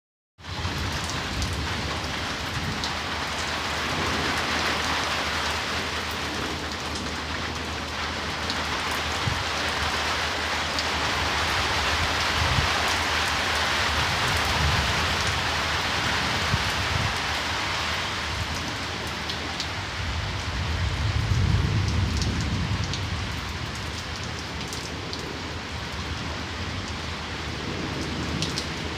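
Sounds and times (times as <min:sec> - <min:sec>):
heavy rain hissing: 0:00.4 - 0:21.8
raindrop ticks: 0:27.9 - 0:28.8.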